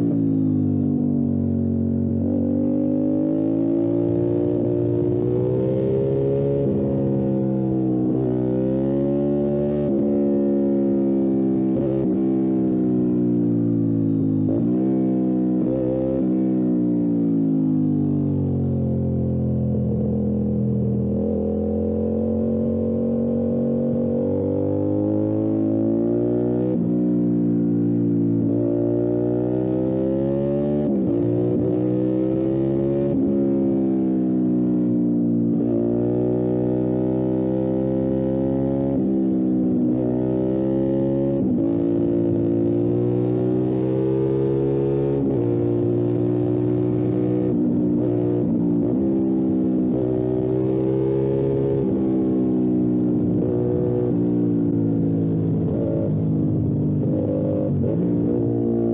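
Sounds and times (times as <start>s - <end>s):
motorcycle engine accelerating: 0.0s - 58.9s
motorcycle engine running: 44.8s - 58.9s.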